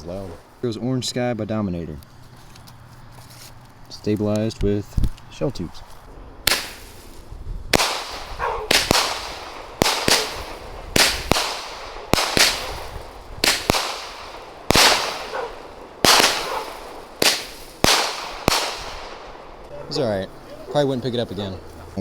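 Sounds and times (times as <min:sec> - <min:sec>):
firework shots with ringing tail: 0:07.7 - 0:19.6.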